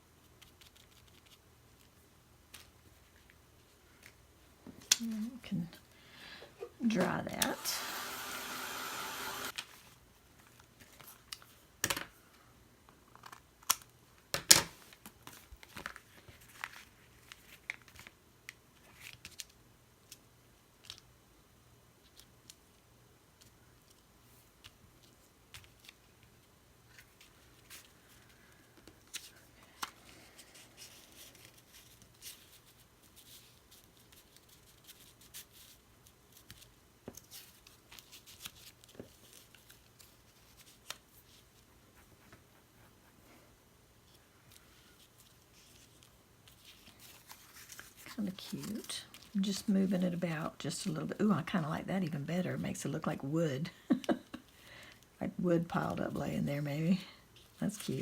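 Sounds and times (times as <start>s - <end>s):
heat tool blowing: 7.4s - 9.6s
paper handling taps and rustles: 13.2s - 19.6s, 45.2s - 49.4s.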